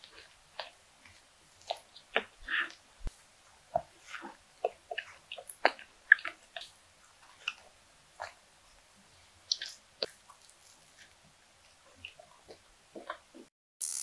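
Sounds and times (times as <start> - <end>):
biting and chewing soft bun: 0.0 - 13.3
mouth clicks: 3.8 - 6.7, 9.5 - 10.6.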